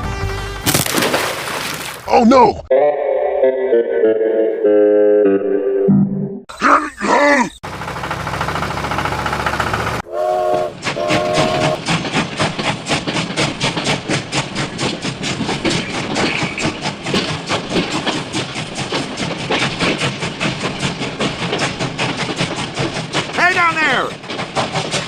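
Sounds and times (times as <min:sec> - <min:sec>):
train hiss and rumble: 0:07.0 - 0:25.0
wheels clacking over rail joints: 0:07.6 - 0:25.0
train whistle blasts: 0:10.0 - 0:11.8.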